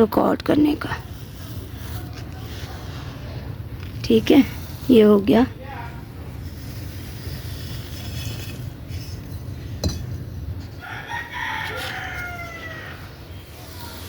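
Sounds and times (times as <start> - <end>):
rooster crowing: 10.8 - 13.2.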